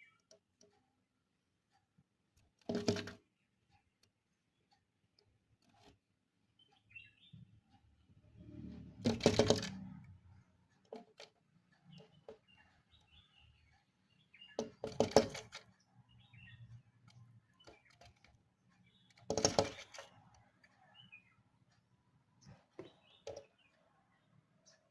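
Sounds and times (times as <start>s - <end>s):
faint bird chirps: 0.0s - 0.3s, 6.5s - 8.0s, 11.8s - 14.6s, 15.8s - 19.3s, 19.9s - 24.9s
bird pecking at window glass: 2.4s - 3.3s, 5.2s - 6.1s, 8.4s - 10.2s, 10.8s - 13.2s, 14.4s - 20.5s, 22.4s - 23.6s.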